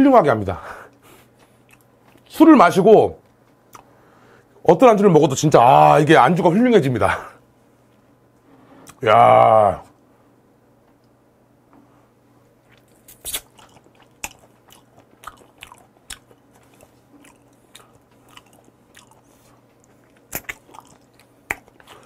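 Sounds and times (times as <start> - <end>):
person chewing and biting: 12.7 - 22.0
sharp mouth clicks: 20.2 - 21.8.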